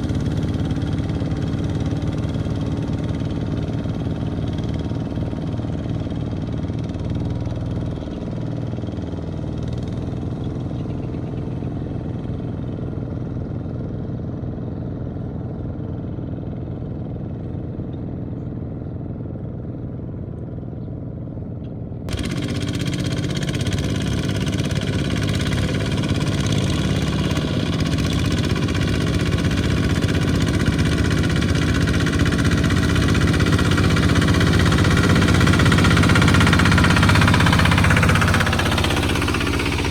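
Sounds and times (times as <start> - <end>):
tractor engine running: 0.0 - 11.8, 22.1 - 39.9
louder brighter engine: 22.1 - 39.9.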